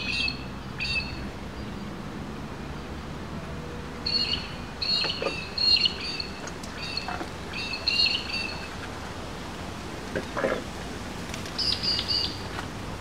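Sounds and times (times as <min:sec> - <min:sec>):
birds chirping: 0:00.0 - 0:02.0, 0:03.5 - 0:08.9, 0:11.5 - 0:12.6.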